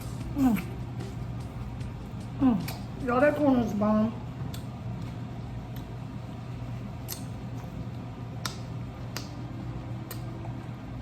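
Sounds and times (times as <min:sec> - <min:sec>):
steady low hum: 0:00.0 - 0:11.0
mouth clicks and smacks: 0:07.0 - 0:09.4, 0:10.0 - 0:10.3.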